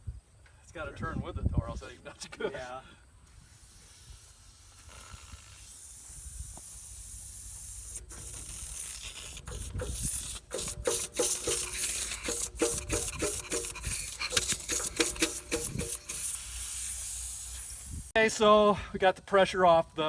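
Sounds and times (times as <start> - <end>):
gas hissing from hose coupling: 3.4 - 18.2.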